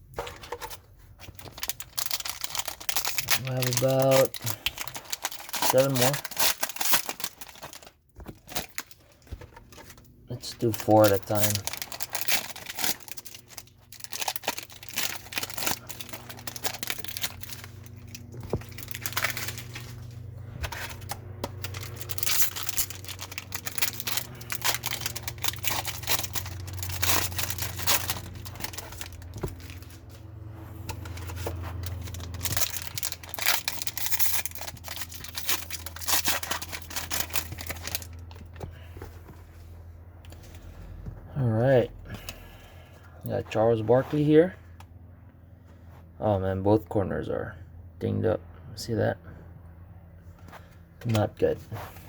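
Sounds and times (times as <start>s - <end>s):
steady low hum: 0.0s - 52.0s
card pack wrappers tearing: 0.2s - 38.9s.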